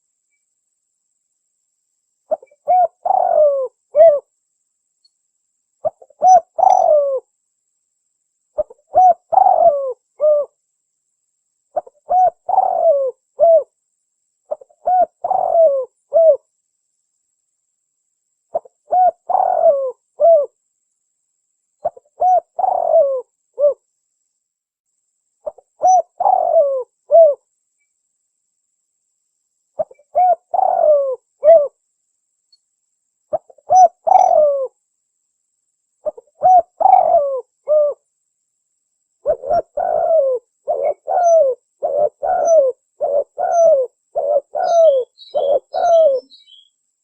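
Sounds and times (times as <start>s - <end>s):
dove cooing: 2.3s - 4.3s, 5.8s - 7.3s, 8.6s - 10.6s, 11.8s - 13.7s, 14.5s - 16.5s, 18.5s - 20.6s, 21.8s - 23.8s, 25.4s - 27.4s, 29.8s - 31.8s, 33.3s - 34.8s, 36.0s - 38.0s, 39.2s - 46.6s.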